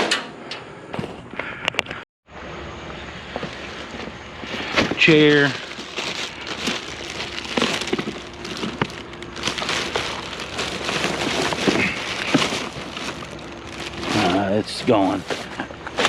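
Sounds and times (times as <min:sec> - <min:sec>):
steady noisy background: 0:00.5 - 0:16.0
crackling rustle: 0:03.3 - 0:16.0.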